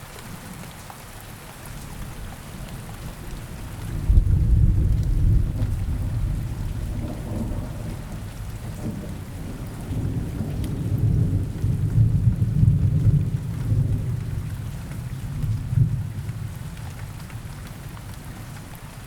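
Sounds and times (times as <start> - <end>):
steady rain: 0.0 - 19.0
rolling thunder rumble: 3.0 - 18.5.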